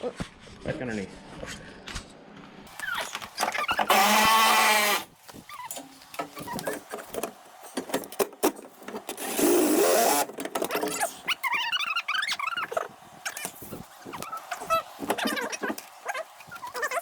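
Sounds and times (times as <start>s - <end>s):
handheld power tool running: 2.7s - 17.0s.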